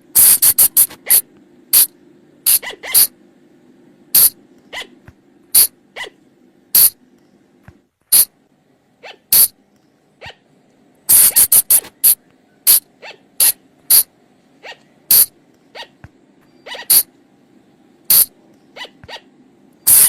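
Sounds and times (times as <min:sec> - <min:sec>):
high-pitched animal squeaks: 0:00.4 - 0:01.9, 0:02.5 - 0:03.1, 0:04.2 - 0:05.0, 0:05.6 - 0:06.2, 0:09.0 - 0:09.5, 0:10.2 - 0:10.4, 0:11.1 - 0:17.1, 0:18.1 - 0:19.3.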